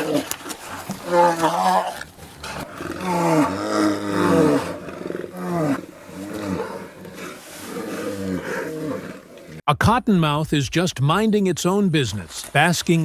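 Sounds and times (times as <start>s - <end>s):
large animal roaring: 0.0s - 9.6s.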